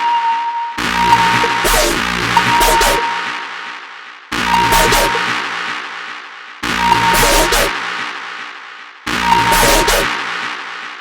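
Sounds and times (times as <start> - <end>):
electronic dance music bass hit: 0.8 - 3.4, 4.3 - 6.0, 6.6 - 11.0.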